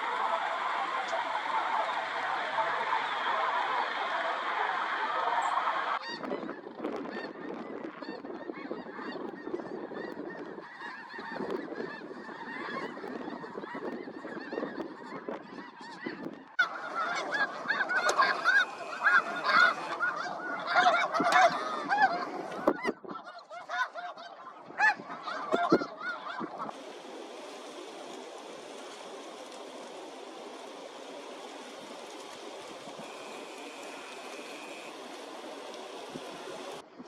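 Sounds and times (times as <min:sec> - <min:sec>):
geese honking: 0:15.5 - 0:36.9.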